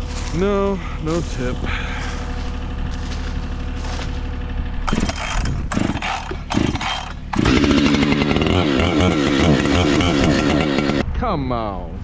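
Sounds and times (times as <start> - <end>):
chainsaw engine revving: 2.0 - 11.0.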